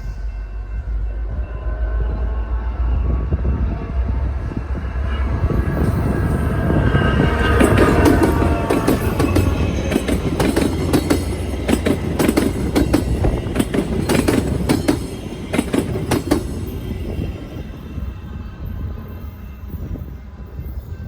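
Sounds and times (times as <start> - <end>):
low train rumble: 0.0 - 21.0
train wheels clattering over crossing: 4.2 - 18.8.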